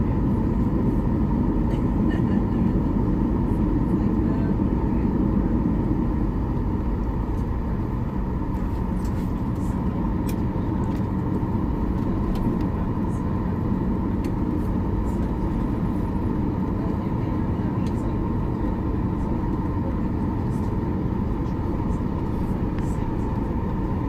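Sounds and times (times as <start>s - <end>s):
engine and airflow rumble: 0.0s - 24.0s
faint constant hum: 0.0s - 24.0s.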